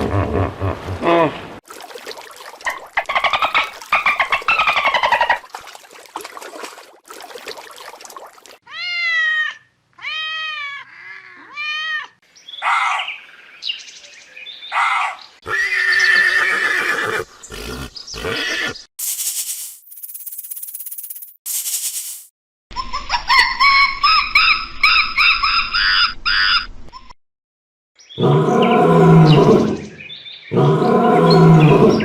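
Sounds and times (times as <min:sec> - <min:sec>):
horse whinnying: 0:15.4 - 0:18.8.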